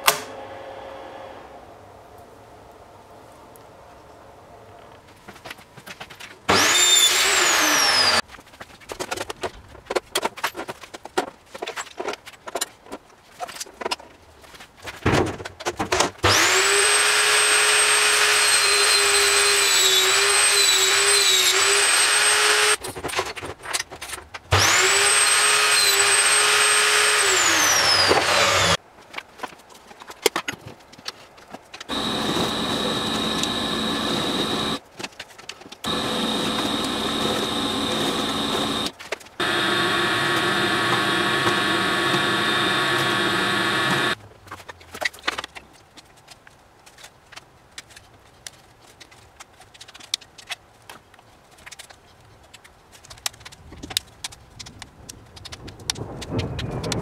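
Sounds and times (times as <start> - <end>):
spindle motor whine: 6.5 - 8.2, 16.3 - 22.8, 24.5 - 28.8, 31.9 - 34.8, 35.9 - 44.2
steady machine hum: 31.9 - 34.8, 35.9 - 44.2.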